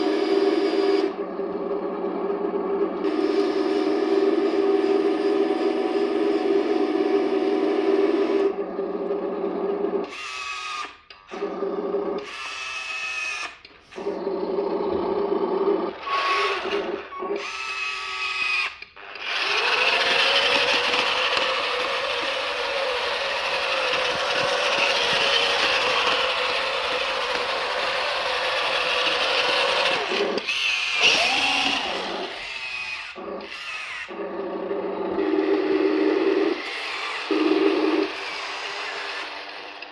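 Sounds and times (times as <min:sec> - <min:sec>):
toy motor and gearbox whirring: 0:10.1 - 0:11.3, 0:12.2 - 0:13.8, 0:16.0 - 0:34.2, 0:35.1 - 0:39.9
electronic engine sound effect: 0:33.1 - 0:38.5.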